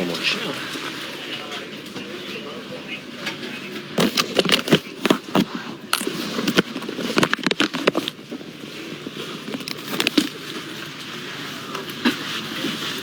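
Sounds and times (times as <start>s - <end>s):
train carriage background noise: 0.0s - 13.0s
handling clicks and rustles: 3.8s - 11.1s.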